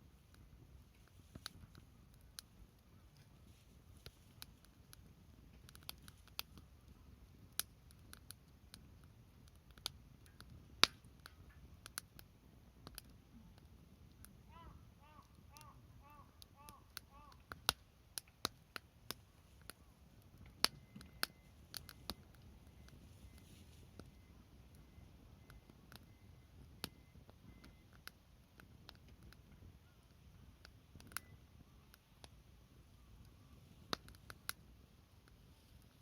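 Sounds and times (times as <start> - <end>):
wood fire crackling: 0.0 - 36.0
bird calling short notes: 14.5 - 17.5.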